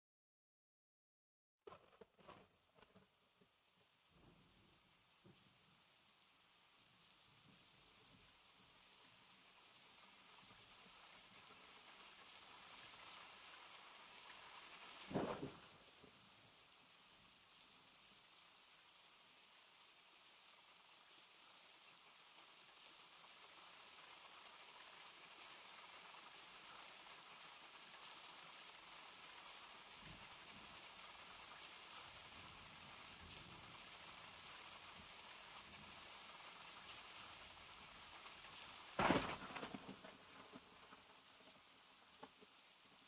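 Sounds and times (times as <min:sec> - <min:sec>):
steady rain falling: 0:01.7 - 0:43.0.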